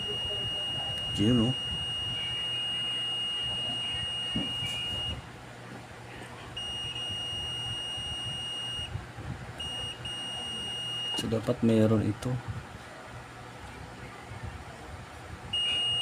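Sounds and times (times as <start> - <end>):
multimeter high beep: 0.0 - 5.2, 6.6 - 9.0, 9.6 - 11.4, 15.5 - 16.0.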